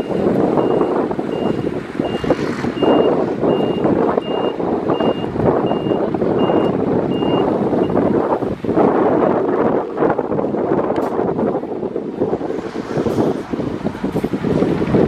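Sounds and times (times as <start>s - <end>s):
reversing alarm beeps: 0.0s - 2.2s, 2.8s - 8.0s.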